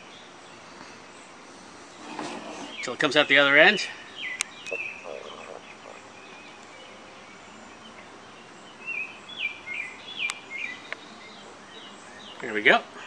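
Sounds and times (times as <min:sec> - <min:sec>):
birds chirping: 0:00.0 - 0:13.0
outdoor background hiss: 0:00.0 - 0:13.0.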